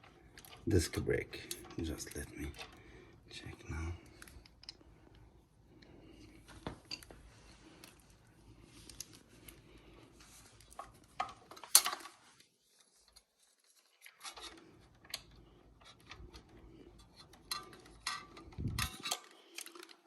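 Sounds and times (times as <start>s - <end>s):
hands handling small parts: 6.4s - 20.0s.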